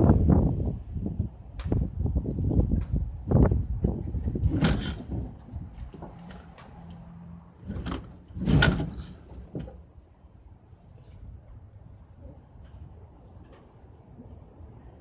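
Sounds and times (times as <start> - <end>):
refrigerator bumping and scraping: 4.3 - 5.4, 7.6 - 9.8.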